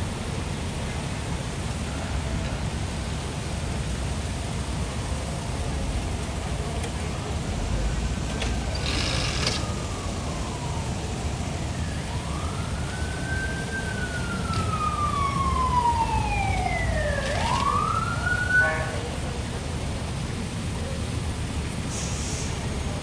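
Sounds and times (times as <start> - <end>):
low traffic rumble: 0.0 - 23.0
emergency siren wailing: 5.9 - 19.7.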